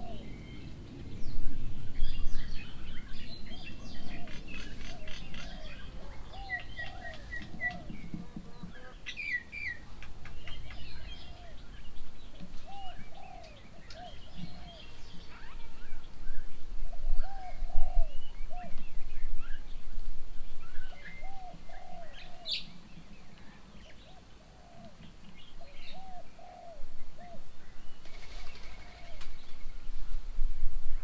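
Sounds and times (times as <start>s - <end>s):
doves cooing: 0.0s - 0.6s, 3.4s - 9.0s, 10.4s - 11.8s, 12.5s - 16.1s, 16.9s - 18.8s, 20.7s - 29.9s.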